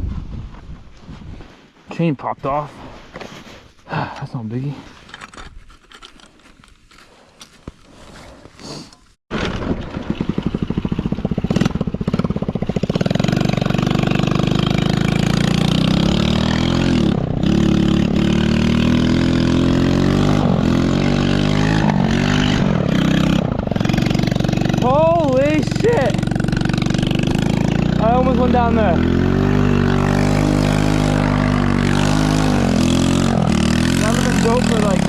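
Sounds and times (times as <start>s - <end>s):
small engine revving: 9.7s - 35.0s.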